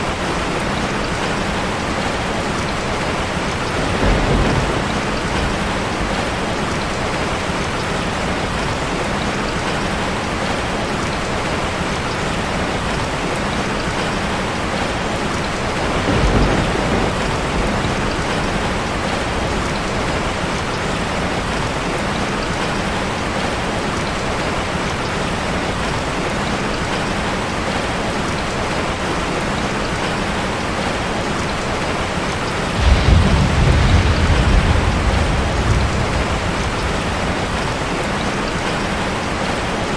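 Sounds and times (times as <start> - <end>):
heavy rain on a metal roof: 0.0 - 39.9
low rumbles: 32.8 - 38.6.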